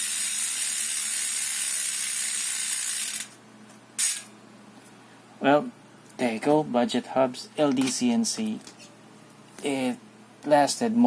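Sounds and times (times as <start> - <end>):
bicycle freehub ratcheting buzz: 0.0 - 3.4.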